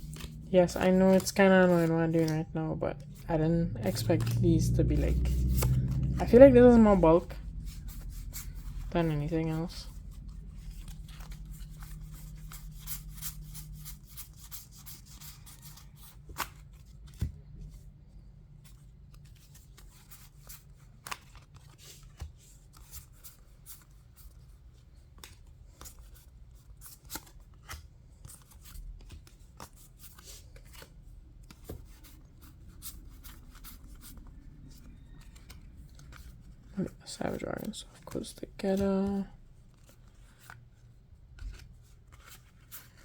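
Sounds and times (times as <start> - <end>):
trading cards clicking and rubbing: 0.0 - 2.4, 3.8 - 17.3
faint low hum: 0.0 - 20.8.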